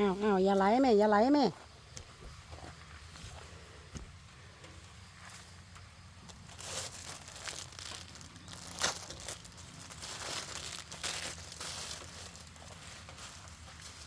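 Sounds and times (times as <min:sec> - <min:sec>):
sickle cutting grass: 0:06.4 - 0:14.0.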